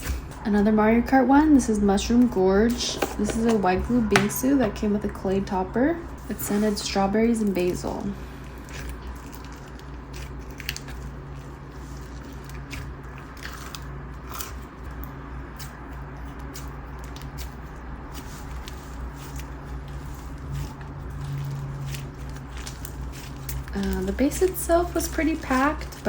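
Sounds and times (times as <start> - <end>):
slime crackling and popping: 8.6 - 14.6.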